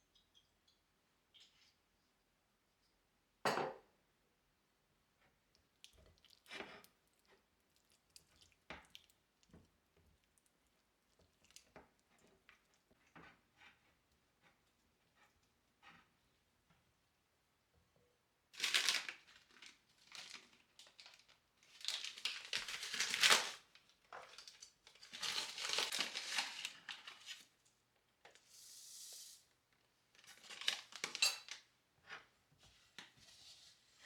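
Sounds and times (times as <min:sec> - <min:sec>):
crinkling and rustling handling: 0:18.6 - 0:28.5, 0:29.7 - 0:34.0.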